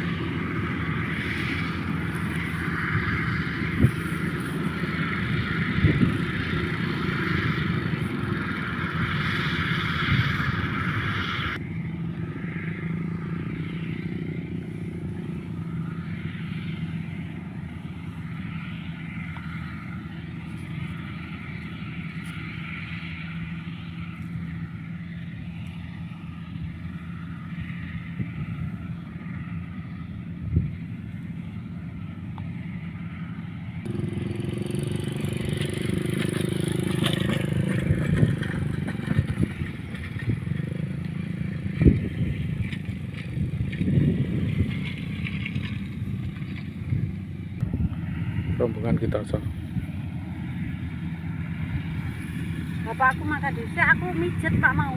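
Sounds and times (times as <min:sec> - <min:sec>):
engine running: 0:00.0 - 0:54.9.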